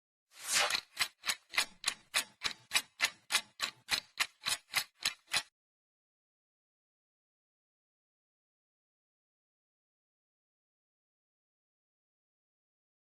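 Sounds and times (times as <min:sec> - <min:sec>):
sharp ticking: 0:00.7 - 0:05.5.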